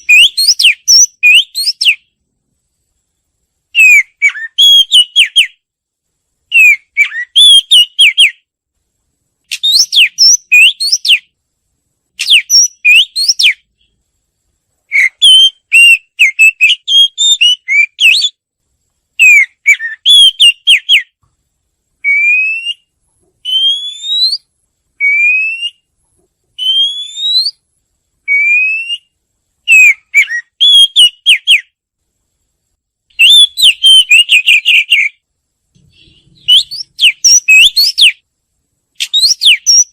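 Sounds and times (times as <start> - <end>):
bird singing whistled phrases: 0.0 - 2.1, 3.8 - 5.6, 6.5 - 8.4, 9.5 - 11.3, 12.2 - 13.7, 14.9 - 18.4, 19.2 - 21.2, 22.0 - 25.9, 26.6 - 27.6, 28.3 - 31.7, 33.2 - 35.2, 35.8 - 38.2, 39.0 - 39.9
single rising bird whistles: 9.5 - 11.3, 12.2 - 13.6, 22.0 - 25.9, 26.6 - 27.6, 35.9 - 38.2, 39.0 - 39.9.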